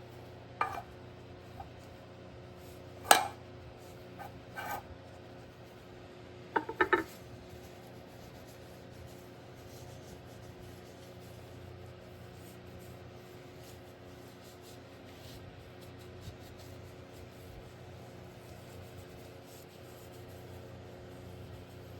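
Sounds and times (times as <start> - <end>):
scratchy rubbing strokes: 0.6 - 0.9, 4.2 - 4.9.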